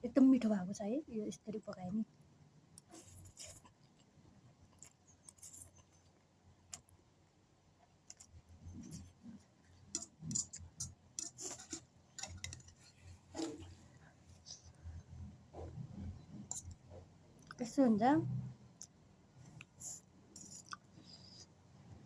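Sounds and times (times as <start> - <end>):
mouth sounds of eating: 18.6 - 21.6.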